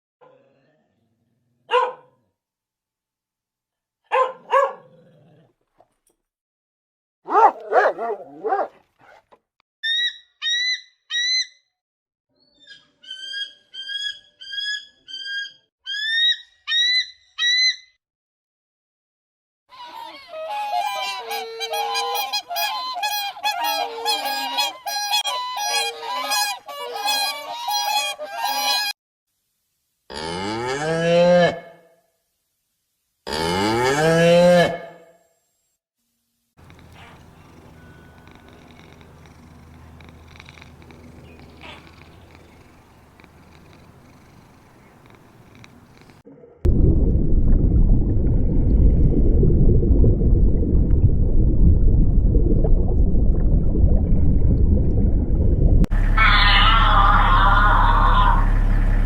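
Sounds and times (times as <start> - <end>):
birds honking: 36.6 - 46.2, 56.0 - 59.0.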